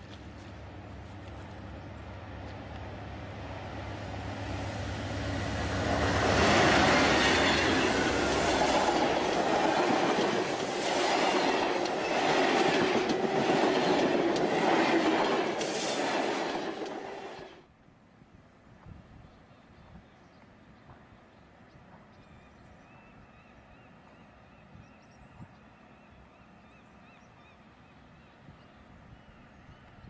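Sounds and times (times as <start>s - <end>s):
locomotive rumble: 0.0s - 17.6s
wheels clicking over rail joints: 7.2s - 17.1s.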